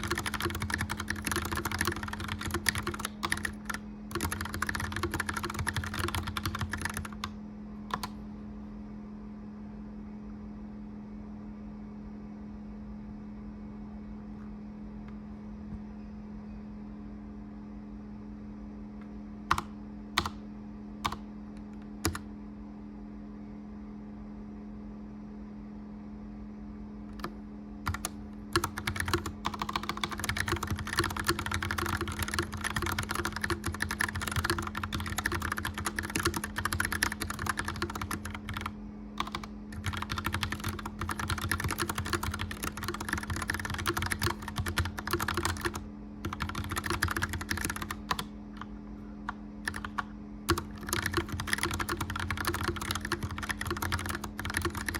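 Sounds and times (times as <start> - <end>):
mechanical keyboard typing: 0.0 - 7.3, 7.9 - 8.2, 19.5 - 20.4, 22.0 - 22.3, 27.1 - 48.7, 49.6 - 54.9
fireplace fan humming: 0.0 - 54.9.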